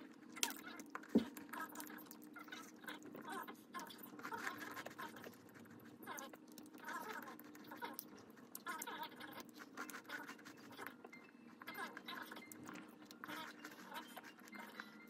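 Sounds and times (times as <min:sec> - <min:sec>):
person chewing crunchy cookie: 0:00.0 - 0:10.9.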